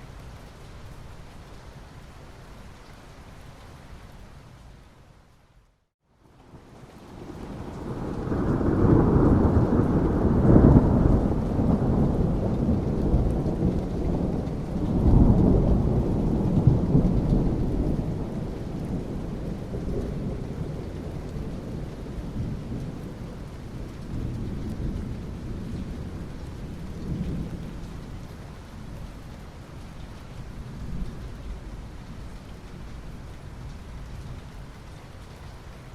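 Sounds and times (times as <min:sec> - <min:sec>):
steady rain: 0:00.0 - 0:35.9
thunder rumbling: 0:07.2 - 0:28.4.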